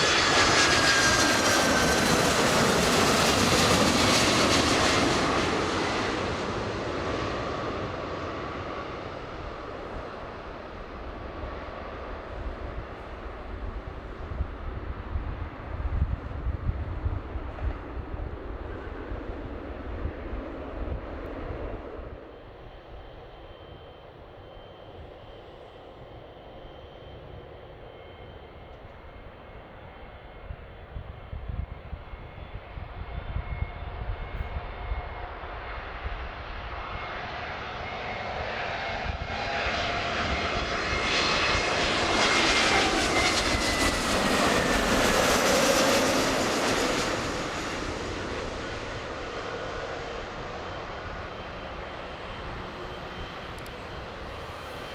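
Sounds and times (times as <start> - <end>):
jet airliner passing: 0.0 - 54.9
high jet fan whine: 38.1 - 54.9.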